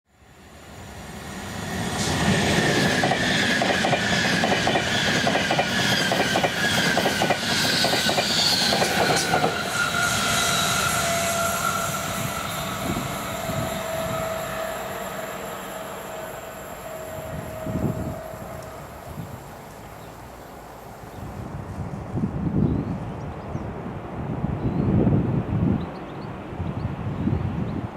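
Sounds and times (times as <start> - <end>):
train wheels clacking over rail joints: 2.0 - 11.8
high whine falling in pitch: 10.2 - 19.3.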